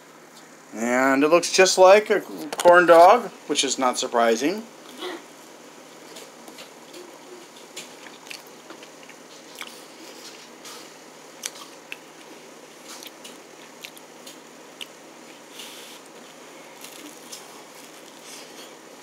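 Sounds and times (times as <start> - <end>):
person chewing with mouth clicks: 6.6 - 10.4, 11.4 - 16.2.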